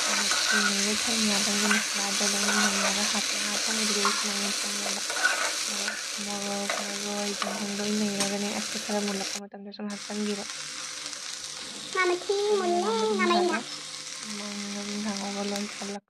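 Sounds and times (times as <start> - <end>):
spatula stirring: 0.0 - 8.4
vegetables sizzling in a wok: 0.0 - 16.0.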